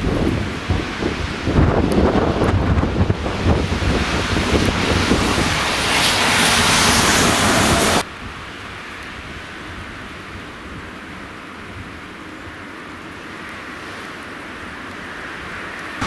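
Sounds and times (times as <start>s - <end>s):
storm wind buffeting microphone: 0.0s - 12.1s.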